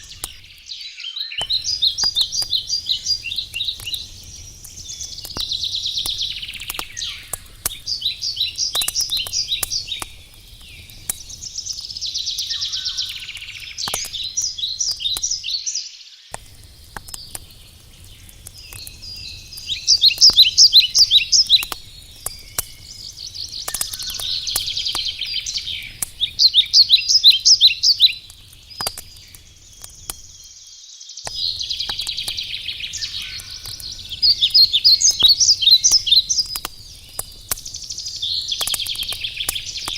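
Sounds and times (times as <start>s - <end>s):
campfire crackling: 0.0s - 0.8s, 1.4s - 39.9s
songbird trilling: 0.0s - 10.2s, 12.0s - 16.0s, 18.8s - 28.3s, 31.3s - 37.1s.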